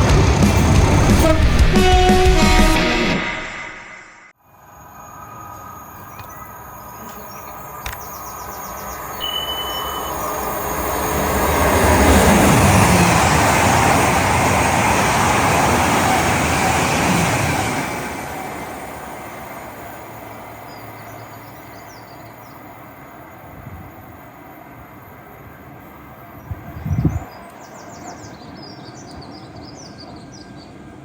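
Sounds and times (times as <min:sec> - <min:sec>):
train passing: 0:00.0 - 0:31.0
short high tone: 0:09.2 - 0:10.4.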